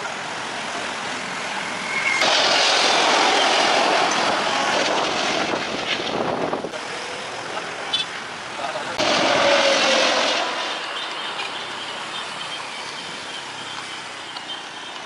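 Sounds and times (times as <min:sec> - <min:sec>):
jet engine rushing: 0:00.0 - 0:07.8, 0:08.7 - 0:12.2.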